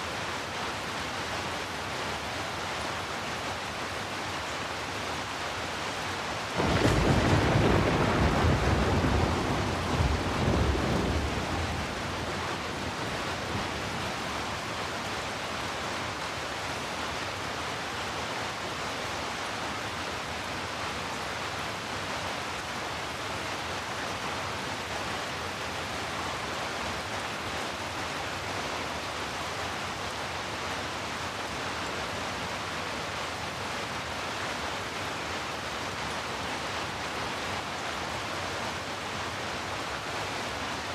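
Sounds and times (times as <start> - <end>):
steady rain: 0.0 - 40.9
thunder rumble: 6.6 - 14.3.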